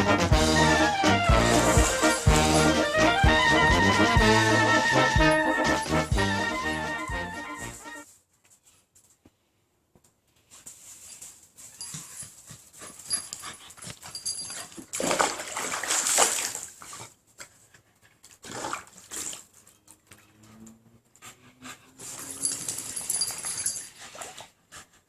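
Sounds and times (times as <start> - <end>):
water splashing: 1.5 - 3.0, 14.9 - 17.0.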